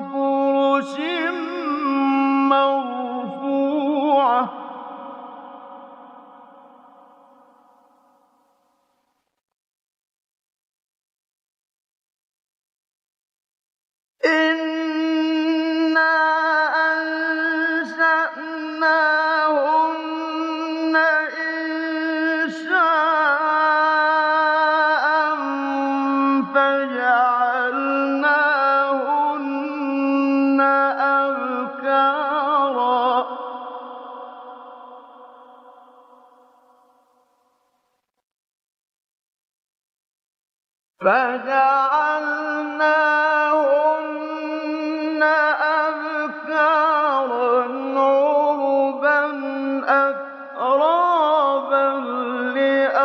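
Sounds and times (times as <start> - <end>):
man chanting melodically: 0.0 - 5.8, 14.2 - 35.6, 41.0 - 53.0.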